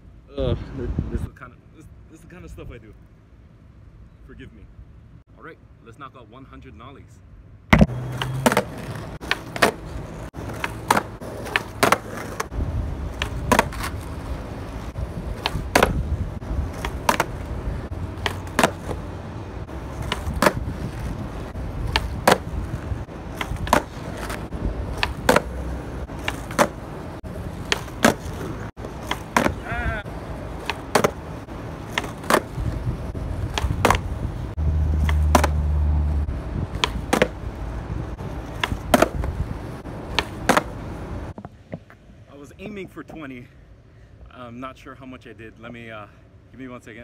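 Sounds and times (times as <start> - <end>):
skateboard popping and landing: 7.7 - 19.1, 19.7 - 29.7, 30.4 - 35.7, 36.7 - 37.4, 38.3 - 42.2
skateboard wheels rolling: 7.7 - 43.2.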